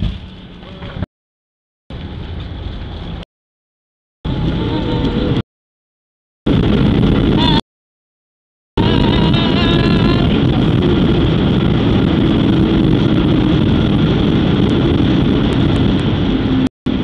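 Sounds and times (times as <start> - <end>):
jet engines roaring in cabin: 4.3 - 5.4, 6.5 - 7.6, 8.8 - 17.0
rushing air: 6.5 - 7.6, 8.8 - 17.0.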